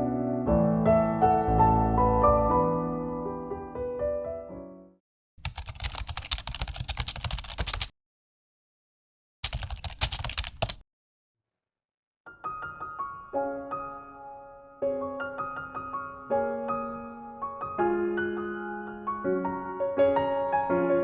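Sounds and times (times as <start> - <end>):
piano music: 0.0 - 5.0, 12.3 - 21.0.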